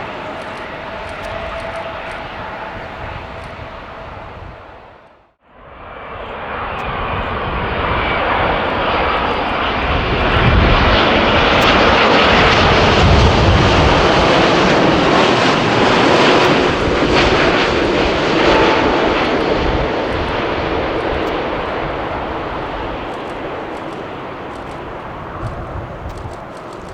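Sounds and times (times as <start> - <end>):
jet airliner engines passing: 0.0 - 26.9.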